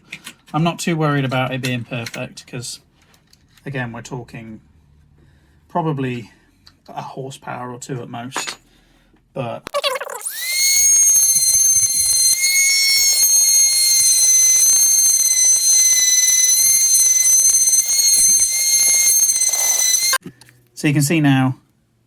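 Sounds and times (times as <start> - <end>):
rotary tool grinding metal: 10.1 - 20.2.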